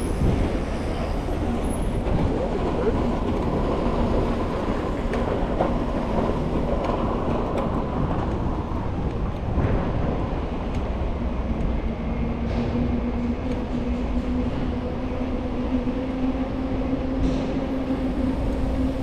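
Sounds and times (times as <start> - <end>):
bicycle rolling on pavement: 0.0 - 11.9
wind on microphone: 0.0 - 19.0.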